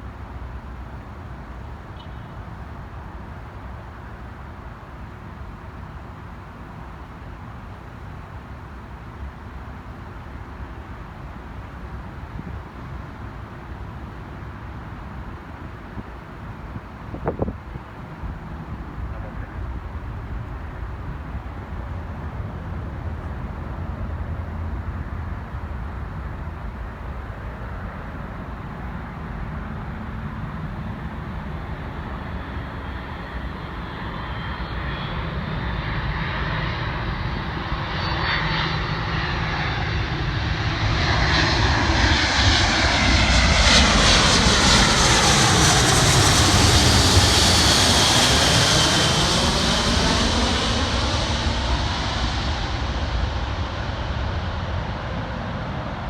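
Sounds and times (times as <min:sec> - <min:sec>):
jet engines whining: 0:24.1 - 0:56.0.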